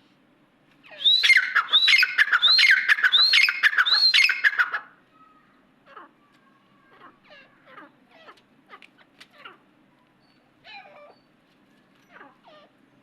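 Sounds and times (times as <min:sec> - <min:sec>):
partridge calling: 0:00.8 - 0:04.9.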